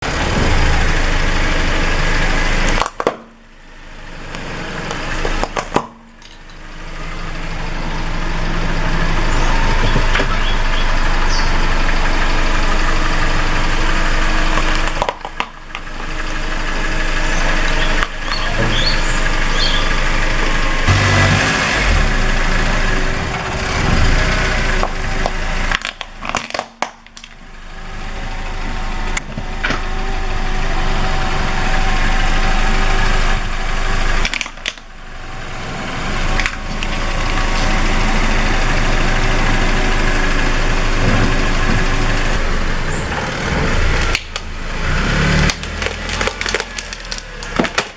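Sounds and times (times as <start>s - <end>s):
car engine running: 0.0s - 47.9s
tyres crushing objects: 4.4s - 6.6s, 14.5s - 16.4s, 23.1s - 27.4s, 35.5s - 47.9s.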